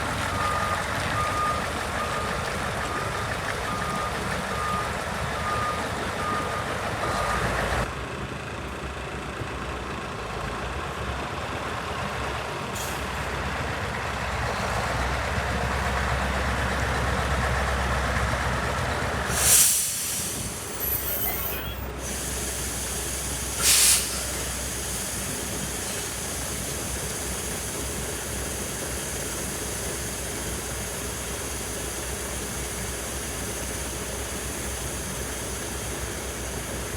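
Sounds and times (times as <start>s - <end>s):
diesel truck engine running: 0.0s - 36.9s
reversing beeper: 0.2s - 7.6s, 20.6s - 22.0s
air brake hiss: 12.8s - 13.2s, 19.3s - 27.9s.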